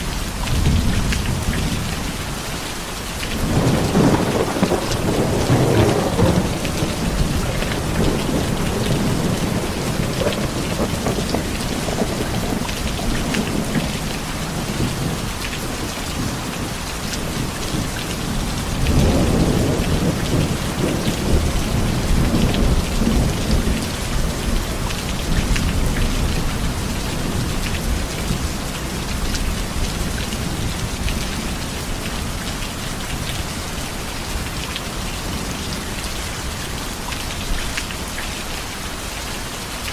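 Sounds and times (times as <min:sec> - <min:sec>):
heavy rain falling: 0:00.0 - 0:39.9
thunder rumbling: 0:03.4 - 0:31.6.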